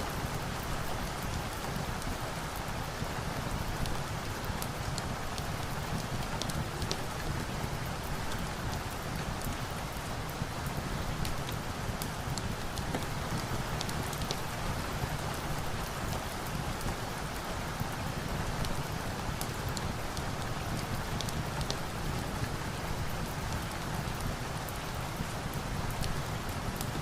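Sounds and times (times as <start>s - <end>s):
steady rain hiss: 0.0s - 27.0s
log fire crackling: 3.9s - 17.4s.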